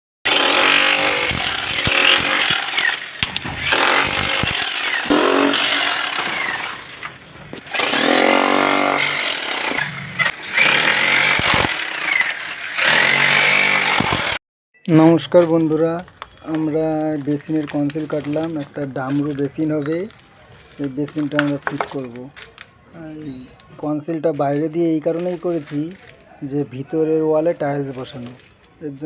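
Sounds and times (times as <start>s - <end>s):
power cutter cutting into wall: 0.3s - 14.4s.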